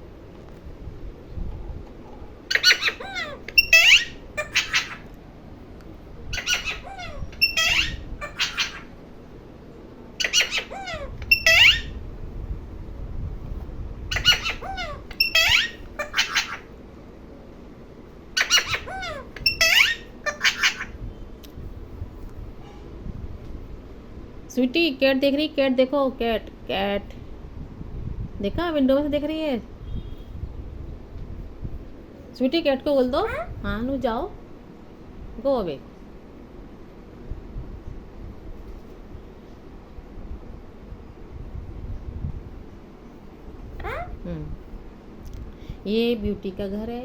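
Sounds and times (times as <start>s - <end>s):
parrot squawking: 2.5s - 5.1s, 6.3s - 9.0s, 10.2s - 12.0s, 14.1s - 16.7s, 18.4s - 21.0s, 43.8s - 44.2s.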